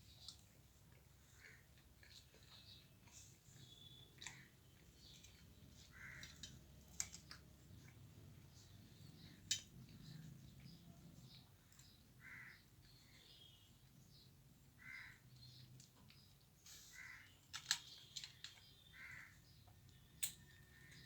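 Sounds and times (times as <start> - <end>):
crow cawing: 5.9 - 6.4, 12.2 - 12.6, 14.8 - 15.2, 19.0 - 19.4.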